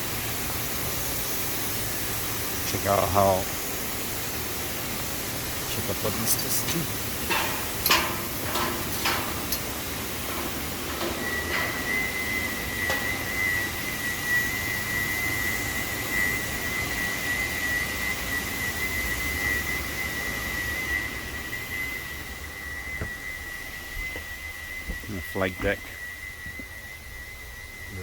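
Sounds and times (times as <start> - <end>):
background hiss: 0.0 - 28.0
high-pitched whistling tone: 5.7 - 28.0.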